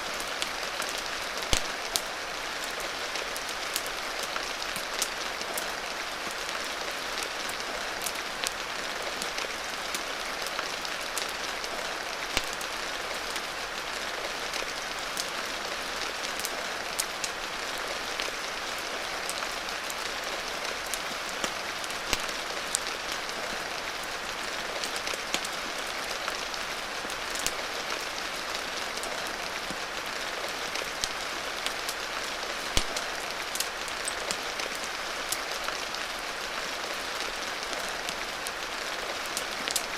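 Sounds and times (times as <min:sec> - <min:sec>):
rain hiss: 0:00.0 - 0:39.9
sharp pops and clicks: 0:32.8 - 0:33.0.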